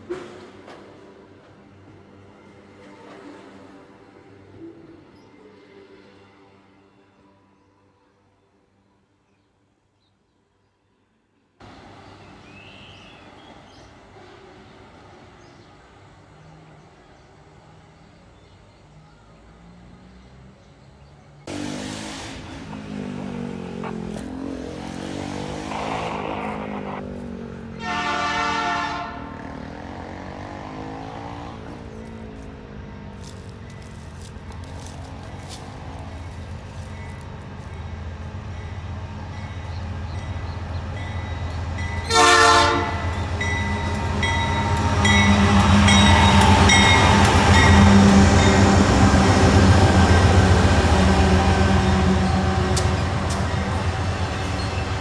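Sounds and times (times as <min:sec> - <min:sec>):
diesel locomotive engine drone: 0:11.6 - 0:55.0
train horn blast: 0:21.5 - 0:32.4, 0:38.7 - 0:55.0.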